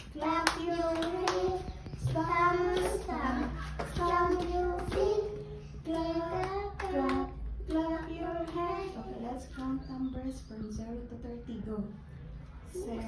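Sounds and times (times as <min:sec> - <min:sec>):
children singing: 0:00.0 - 0:09.4.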